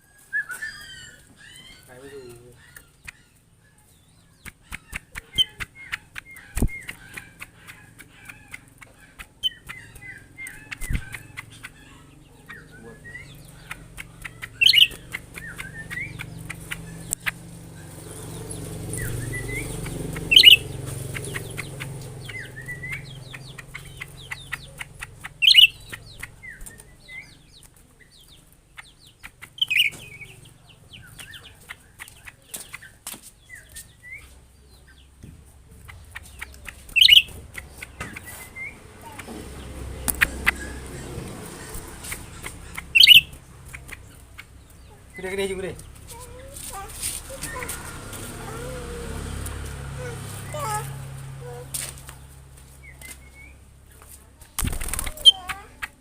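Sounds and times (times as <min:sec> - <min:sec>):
small birds chirping: 0:00.0 - 0:56.0
louder bird calls: 0:00.3 - 0:27.4, 0:28.8 - 0:31.7, 0:35.8 - 0:45.6
quick clicks: 0:04.4 - 0:11.7, 0:40.0 - 0:40.6.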